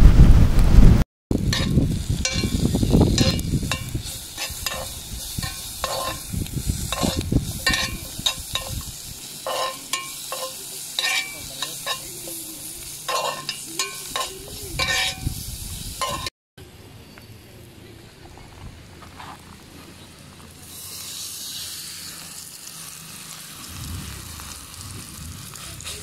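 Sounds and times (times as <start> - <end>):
low rumble: 0.0 - 3.7, 23.6 - 25.8
vegetables sizzling in a skillet: 1.3 - 16.3, 20.4 - 26.0
metal spoon scraping a pan: 1.4 - 16.3.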